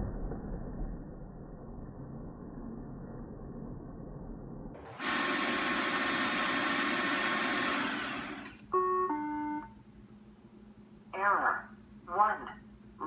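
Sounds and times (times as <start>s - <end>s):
muffled low noise: 0.0s - 4.9s
robot vacuum whirring: 4.9s - 8.6s.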